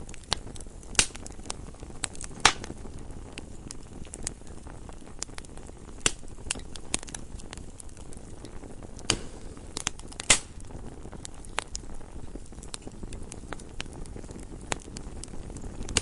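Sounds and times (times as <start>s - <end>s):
low steady fire hiss: 0.0s - 16.0s
wood fire crackling and popping: 0.0s - 16.0s.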